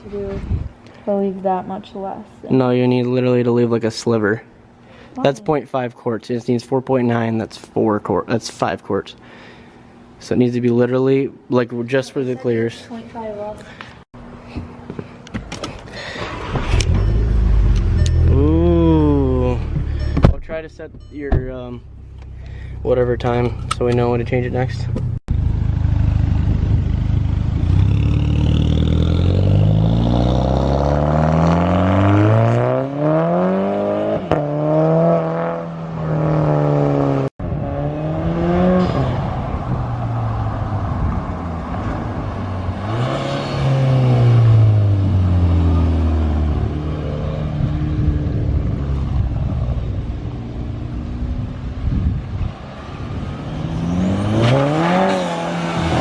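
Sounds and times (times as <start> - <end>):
car engine revving: 27.4 - 56.0.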